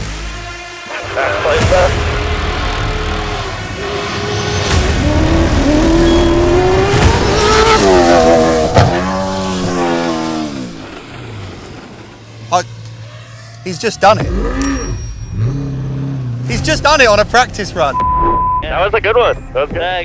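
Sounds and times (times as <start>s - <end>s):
truck engine revving: 0.8s - 18.0s
sharp knocks: 8.7s - 9.2s.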